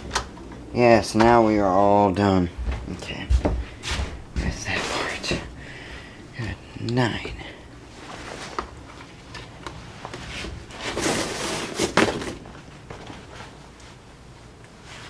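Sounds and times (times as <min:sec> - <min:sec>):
rustling and scraping objects: 0:02.6 - 0:05.6, 0:07.8 - 0:15.0.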